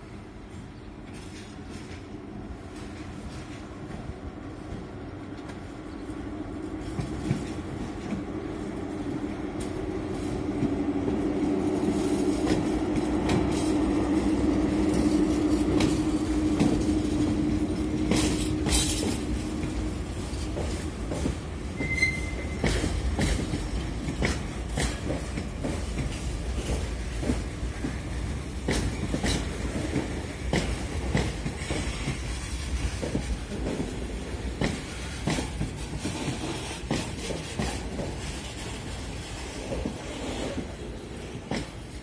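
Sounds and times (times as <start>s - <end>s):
train passing: 0.0s - 42.0s
high wheel squeal: 21.8s - 22.6s.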